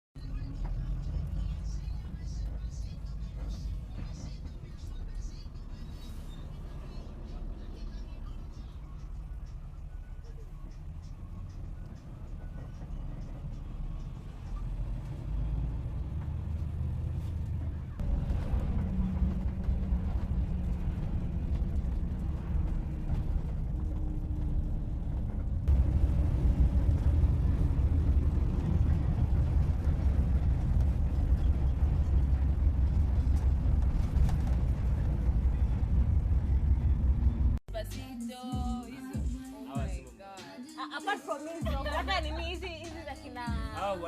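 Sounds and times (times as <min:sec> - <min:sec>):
steady low vehicle rumble: 0:00.2 - 0:40.0, 0:41.6 - 0:44.0.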